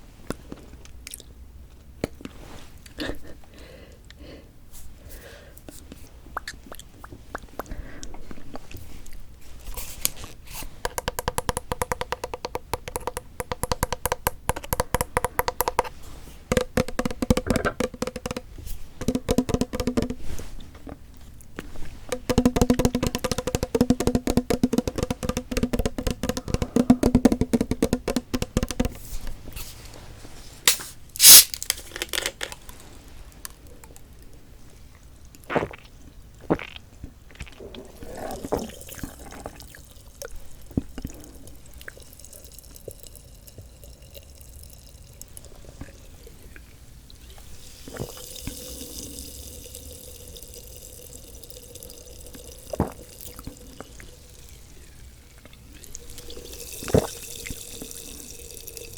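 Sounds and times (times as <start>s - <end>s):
short loud hiss: 30.7s - 31.8s.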